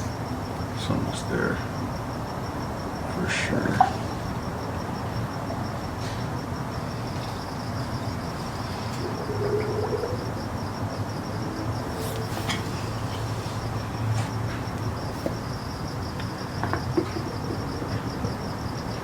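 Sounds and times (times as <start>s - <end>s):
cricket chirping: 0.0s - 19.0s
steady low hum: 0.0s - 19.0s.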